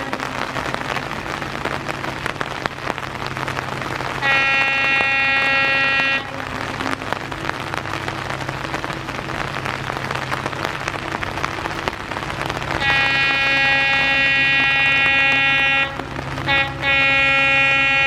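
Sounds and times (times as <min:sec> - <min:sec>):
diesel engine hum: 0:00.0 - 0:18.0
heavy rain hissing: 0:00.0 - 0:18.0
locomotive air horn blast: 0:04.1 - 0:07.6, 0:12.7 - 0:18.0.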